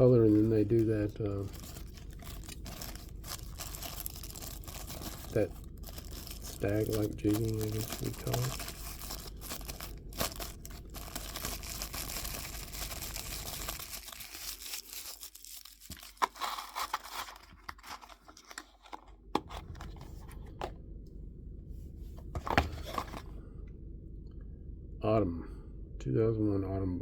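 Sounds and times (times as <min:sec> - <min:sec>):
packaging torn and crinkled: 0:00.0 - 0:19.0.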